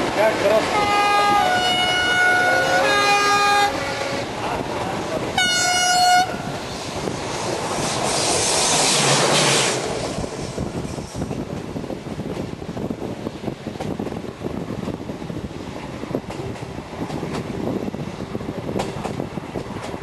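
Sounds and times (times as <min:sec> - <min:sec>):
steam locomotive whistle blast: 0:00.8 - 0:04.2, 0:05.4 - 0:06.4
rushing steam hiss: 0:06.2 - 0:20.0.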